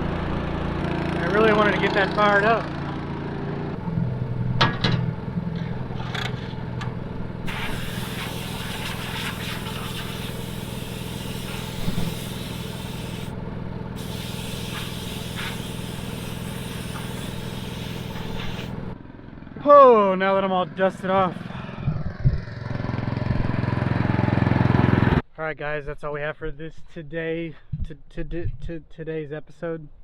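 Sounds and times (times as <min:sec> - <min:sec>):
engine running: 0:00.0 - 0:25.2
hiss: 0:07.5 - 0:13.3, 0:14.0 - 0:18.8.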